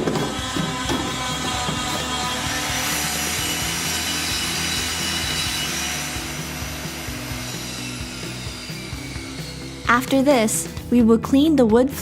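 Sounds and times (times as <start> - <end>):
background music: 0.0 - 12.0
floor surface being scraped: 0.7 - 8.6.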